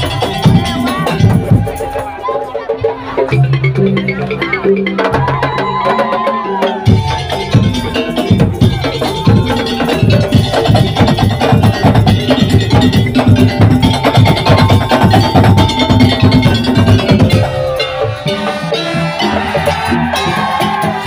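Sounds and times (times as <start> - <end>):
percussion ensemble drumming: 0.0 - 21.0
held melody note: 6.8 - 20.6.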